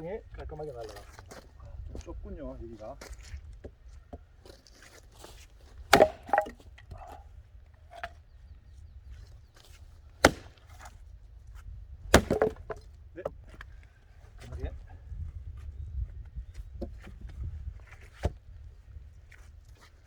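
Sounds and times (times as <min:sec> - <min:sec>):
axe splitting logs: 0:05.6 - 0:07.2, 0:07.8 - 0:08.2, 0:10.1 - 0:11.0, 0:12.0 - 0:13.6.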